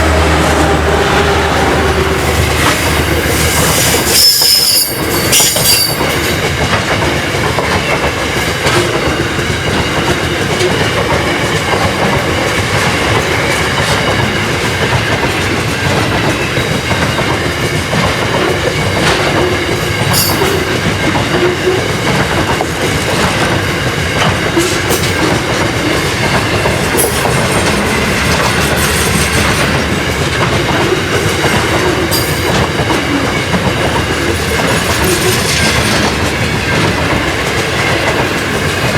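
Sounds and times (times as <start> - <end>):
high wheel squeals: 0.0 - 6.2
clickety-clack over rail joints: 0.0 - 38.9
train wheels rumbling on rails: 0.0 - 38.9.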